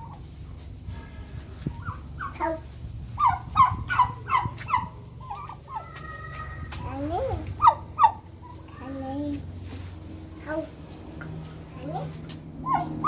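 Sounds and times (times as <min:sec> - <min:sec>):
fowl calling: 0:03.2 - 0:06.7, 0:07.6 - 0:08.6, 0:12.6 - 0:13.0.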